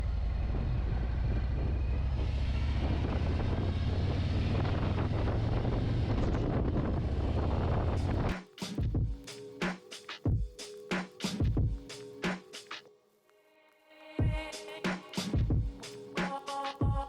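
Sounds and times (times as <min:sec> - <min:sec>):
wind noise on microphone: 0:00.0 - 0:08.3.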